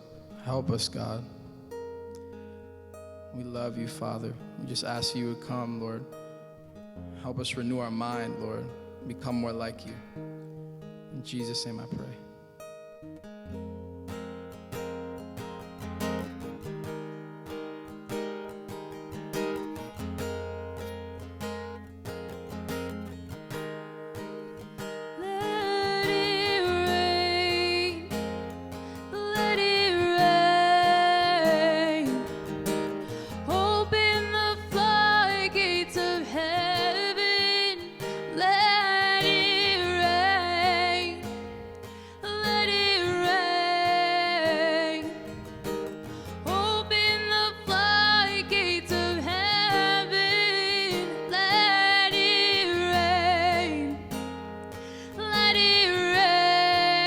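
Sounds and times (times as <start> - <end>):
acoustic guitar strumming: 0.0 - 57.0
person singing: 25.2 - 45.6, 46.3 - 54.1, 55.0 - 57.0.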